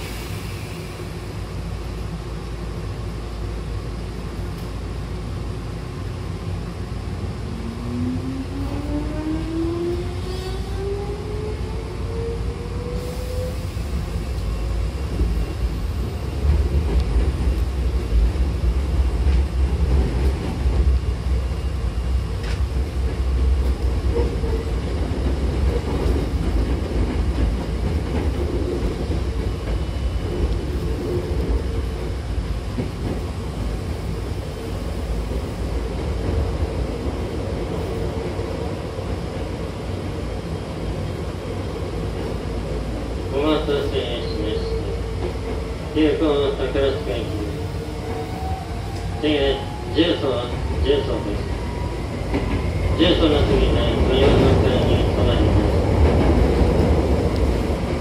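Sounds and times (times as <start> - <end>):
wheels rumbling on rails: 13.8 - 43.1.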